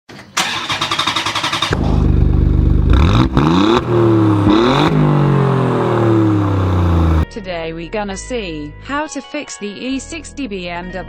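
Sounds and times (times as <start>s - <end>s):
starter cranking: 0.4s - 1.8s
car engine revving: 0.4s - 7.2s.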